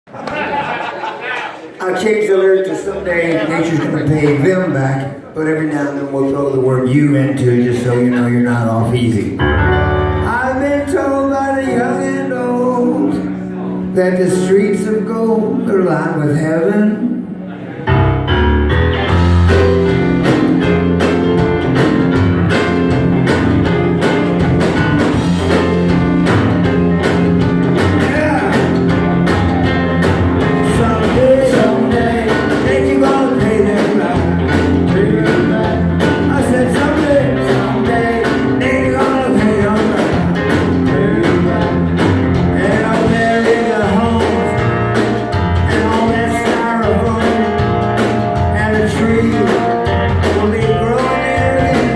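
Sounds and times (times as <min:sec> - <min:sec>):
rock band playing live: 0:02.7 - 0:05.2, 0:05.9 - 0:51.9
person singing: 0:10.1 - 0:17.3, 0:27.7 - 0:51.9.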